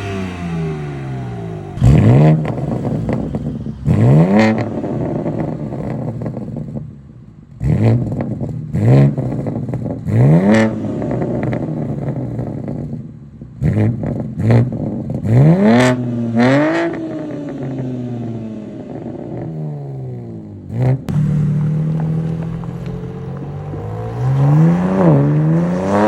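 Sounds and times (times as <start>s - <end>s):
car engine idling: 0.0s - 7.6s, 21.1s - 25.7s
car engine revving: 0.0s - 26.0s.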